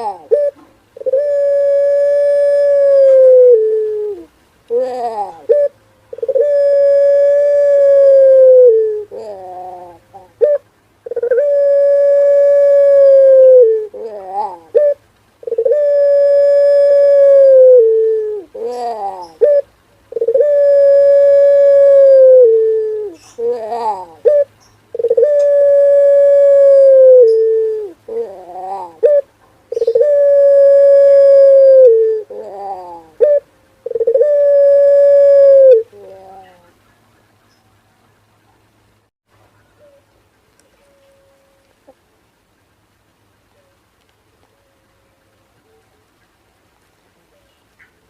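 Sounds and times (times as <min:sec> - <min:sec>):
dove cooing: 0:00.0 - 0:36.8.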